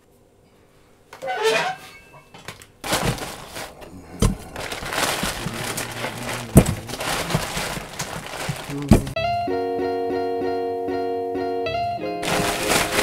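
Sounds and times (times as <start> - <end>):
plastic bag rustling: 2.4 - 9.2, 12.2 - 13.0.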